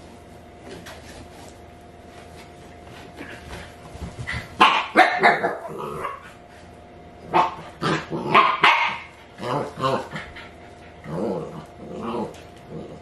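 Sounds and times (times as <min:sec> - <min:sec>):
puppy barking and yipping: 0:08.3 - 0:09.1.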